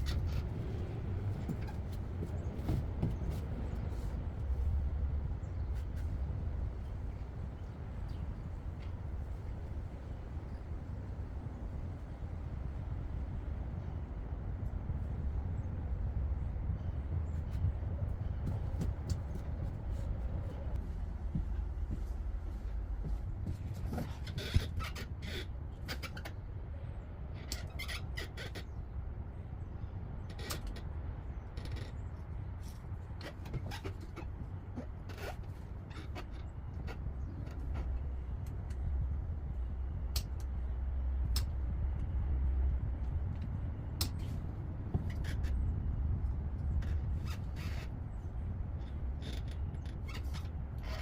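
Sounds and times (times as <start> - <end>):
steady low rumble: 0.0 - 51.0.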